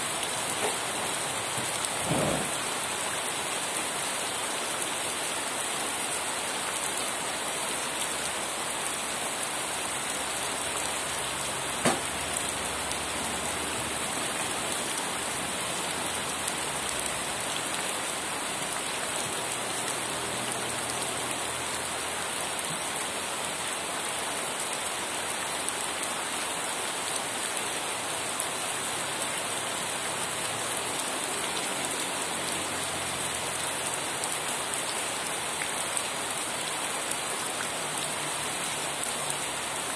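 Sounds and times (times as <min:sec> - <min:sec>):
rain pattering: 0:00.0 - 0:39.9
heavy raindrop tap: 0:11.8 - 0:12.1.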